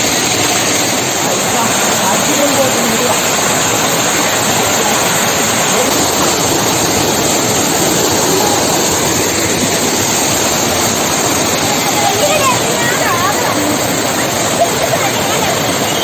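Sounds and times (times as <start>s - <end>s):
water rushing over rocks: 0.0s - 16.0s.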